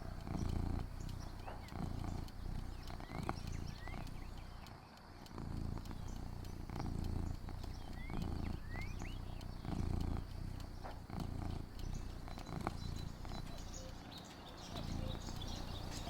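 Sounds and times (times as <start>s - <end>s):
cat purring: 0.0s - 16.0s
faint bird chirps: 0.0s - 16.0s
small ticks: 0.0s - 16.0s.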